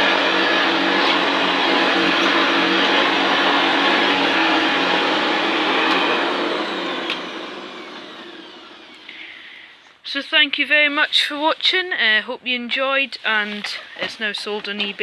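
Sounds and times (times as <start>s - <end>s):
motor winding down: 0.0s - 9.2s
vacuum cleaner running: 0.0s - 9.5s.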